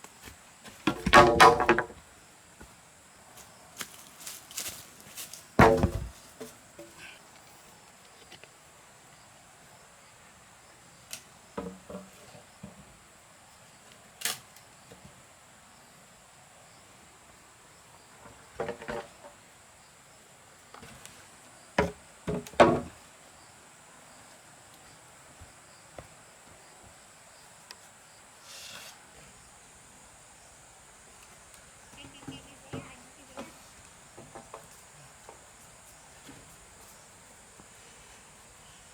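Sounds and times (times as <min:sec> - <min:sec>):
wooden knocks and clatter: 0:00.8 - 0:02.0, 0:05.6 - 0:06.9, 0:18.2 - 0:19.3, 0:21.8 - 0:22.9.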